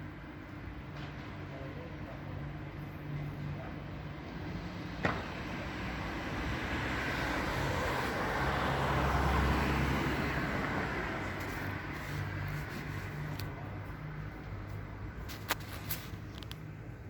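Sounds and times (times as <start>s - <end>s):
vehicle passing: 4.5s - 16.1s.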